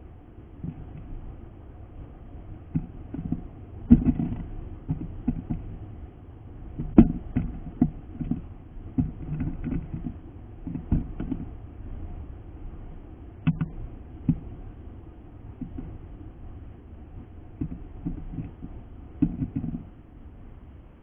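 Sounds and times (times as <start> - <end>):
low rumble: 0.0 - 21.0
soft taps and knocks: 2.7 - 5.8, 6.8 - 11.6, 13.4 - 14.5, 15.6 - 16.0, 17.2 - 19.9.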